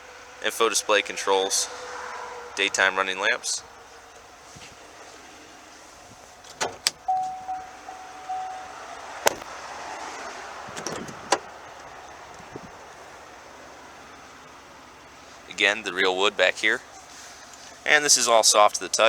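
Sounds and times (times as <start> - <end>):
rustling: 4.2 - 9.5
electronic chime beeps: 7.1 - 8.8
car door latch clicks and knocks: 10.7 - 11.4.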